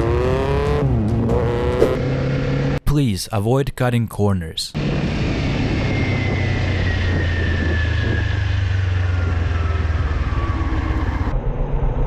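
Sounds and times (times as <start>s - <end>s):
motorcycle engine running: 1.2s - 2.7s.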